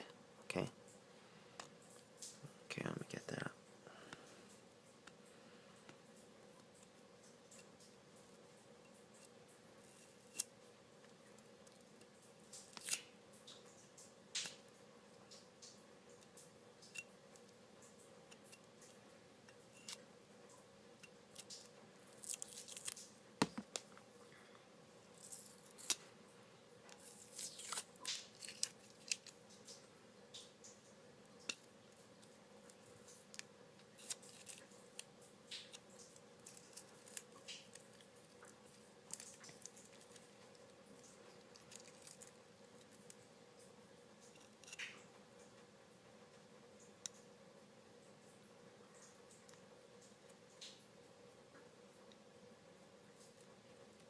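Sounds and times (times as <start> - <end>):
scratching and rustling: 26.9 - 29.6.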